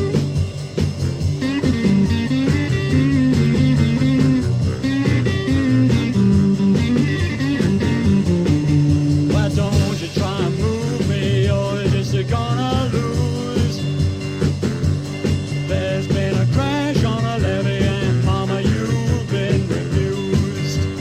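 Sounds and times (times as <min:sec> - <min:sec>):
blues-rock band playing: 0:00.0 - 0:21.0
person singing: 0:09.3 - 0:14.0, 0:15.7 - 0:21.0.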